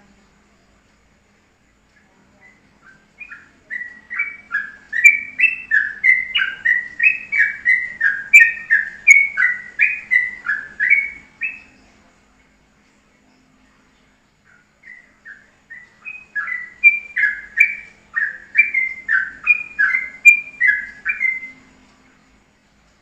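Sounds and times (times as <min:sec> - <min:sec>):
songbird whistling descending notes: 0:02.4 - 0:11.8, 0:14.8 - 0:21.7.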